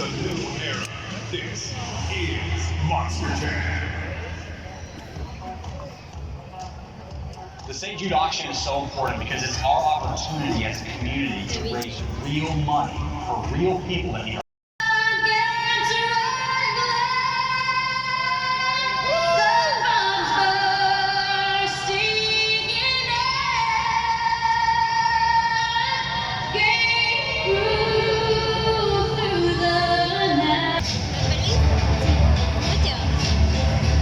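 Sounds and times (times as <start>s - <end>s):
woman singing with vibrato: 14.8s - 30.8s
musical accompaniment: 30.8s - 34.0s.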